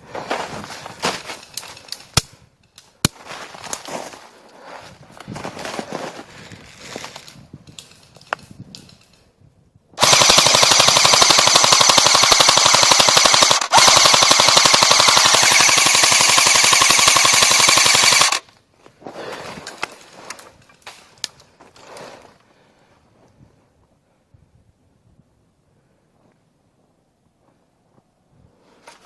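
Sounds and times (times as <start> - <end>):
airsoft gun firing full auto: 10.0 - 18.4.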